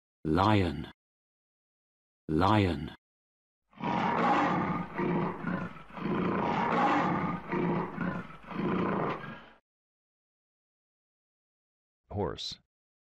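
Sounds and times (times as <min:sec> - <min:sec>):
lion roaring: 0:03.7 - 0:09.6.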